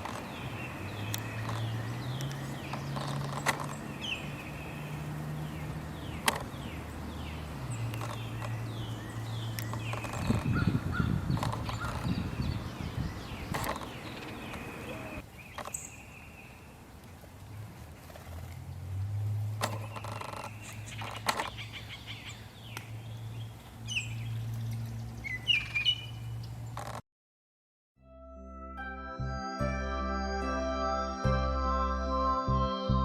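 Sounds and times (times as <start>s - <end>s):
birds chirping and calling: 0.0s - 16.6s, 19.7s - 27.0s
sharp clicks: 7.9s - 8.6s.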